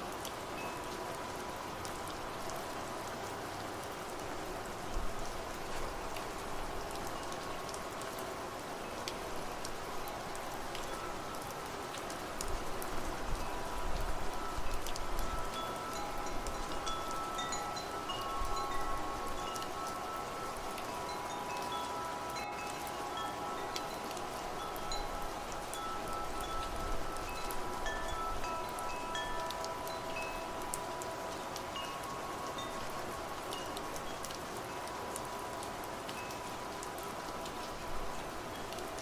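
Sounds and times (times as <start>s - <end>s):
rain hissing: 0.0s - 39.0s
raindrops ticking: 8.9s - 39.0s
wind chimes ringing: 10.0s - 11.6s, 12.9s - 38.7s.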